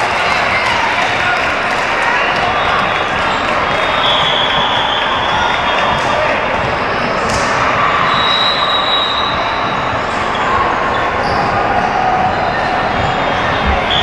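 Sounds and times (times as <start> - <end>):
many voices chattering: 0.0 - 14.0
volleyballs bouncing and hit: 5.3 - 7.8.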